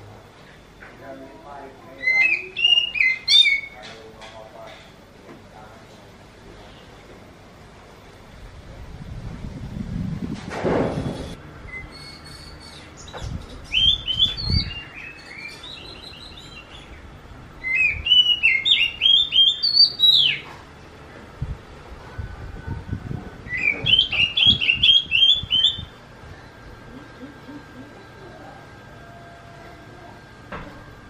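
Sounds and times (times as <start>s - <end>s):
bird calling upslurred notes: 1.9s - 3.9s, 11.7s - 20.5s, 23.4s - 30.3s.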